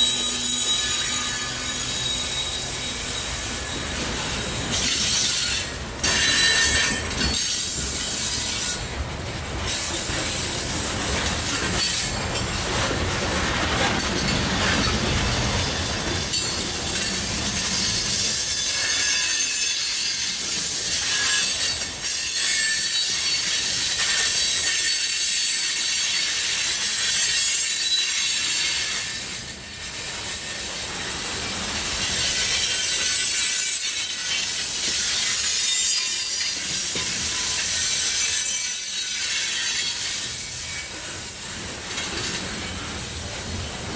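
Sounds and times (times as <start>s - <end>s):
wheel and flange squeal: 0.0s - 8.8s
train cars rolling on rails: 0.0s - 43.9s.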